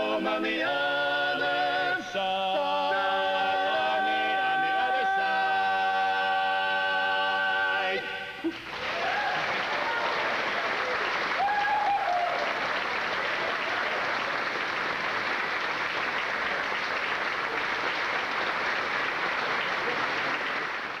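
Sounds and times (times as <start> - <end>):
audience applauding: 8.5 - 21.0.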